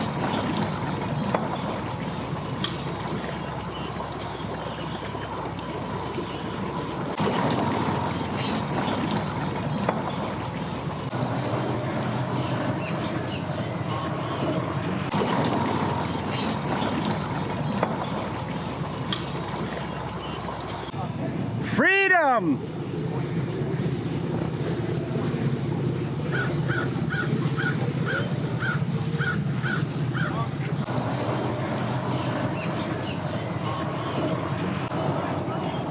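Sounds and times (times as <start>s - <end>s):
boat engine rumbling: 0.0s - 35.9s
engine idling: 22.7s - 35.9s
crow cawing: 26.3s - 30.4s.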